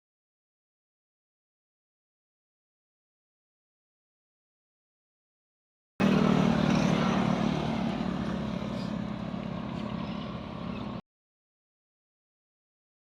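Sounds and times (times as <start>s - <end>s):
vehicle engine humming: 6.0s - 11.0s.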